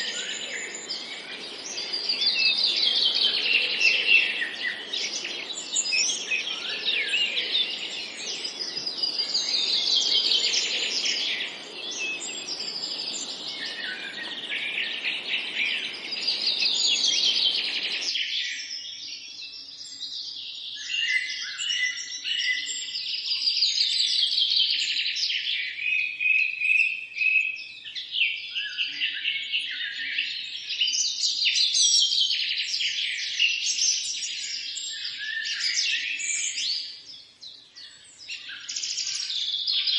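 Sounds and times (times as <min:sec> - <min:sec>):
songbirds chirping: 0:00.0 - 0:39.9
low background hiss: 0:00.3 - 0:18.1.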